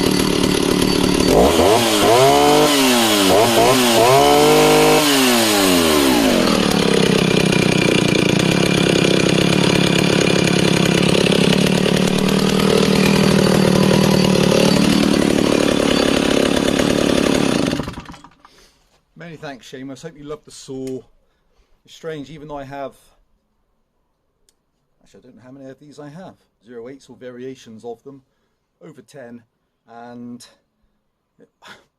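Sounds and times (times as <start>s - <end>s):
chainsaw revving and idling: 0.0s - 18.4s.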